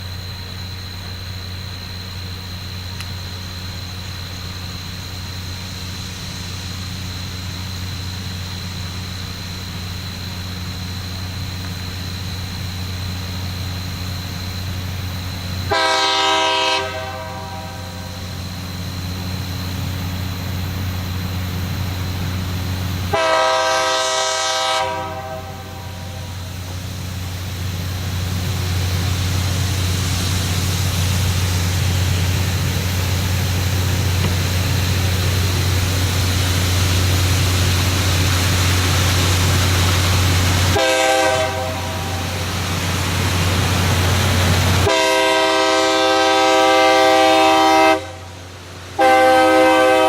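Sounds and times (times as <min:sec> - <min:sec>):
rail grinder train roaring: 0:00.0 - 0:50.0
train horn blasts: 0:15.7 - 0:18.2, 0:23.1 - 0:26.2, 0:40.7 - 0:42.4, 0:44.8 - 0:48.4, 0:49.0 - 0:50.0.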